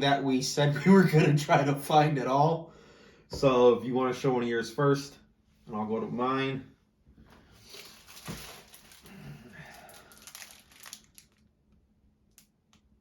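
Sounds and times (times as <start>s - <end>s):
packaging rustling and crinkling: 7.6s - 11.5s.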